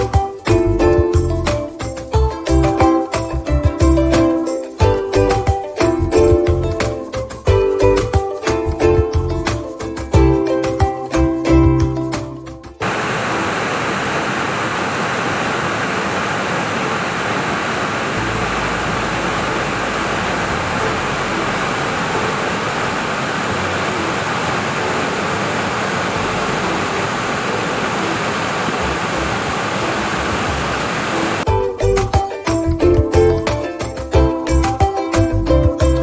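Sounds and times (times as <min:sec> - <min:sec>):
music: 0:00.0 - 0:12.8, 0:31.4 - 0:36.0
stream water rushing: 0:12.8 - 0:31.5.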